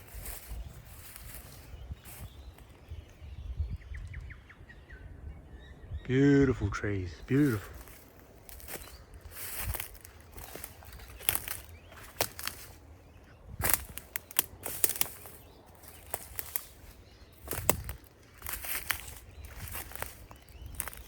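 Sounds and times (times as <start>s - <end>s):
footsteps crunching on path: 0.0s - 2.8s, 7.3s - 21.0s.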